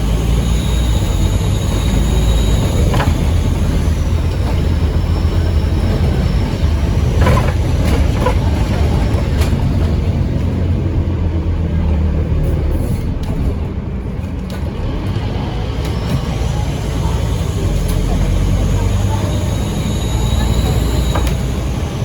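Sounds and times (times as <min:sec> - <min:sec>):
high turbo whistle: 0:00.0 - 0:06.9, 0:19.1 - 0:21.8
bus engine rumble: 0:00.0 - 0:22.0.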